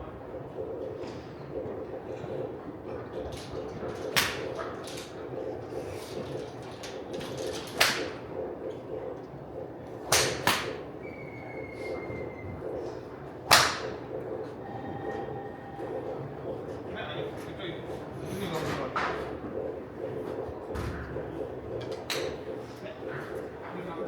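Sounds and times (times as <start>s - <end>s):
steady background noise: 0.0s - 24.0s
golf clubs striking balls: 10.0s - 10.8s, 13.4s - 14.1s.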